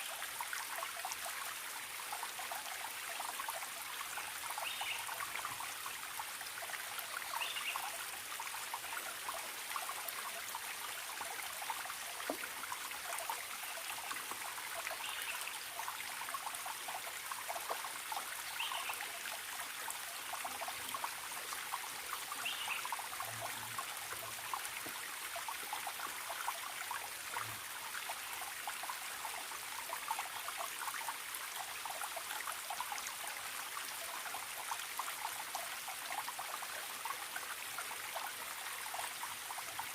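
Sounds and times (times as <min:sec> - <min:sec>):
stream trickling and gurgling: 0:00.0 - 0:39.9.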